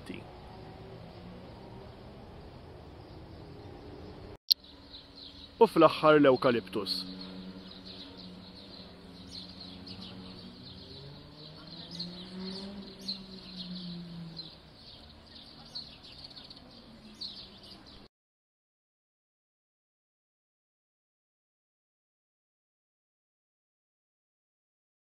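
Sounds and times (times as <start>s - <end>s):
small birds chirping: 0.0s - 18.1s.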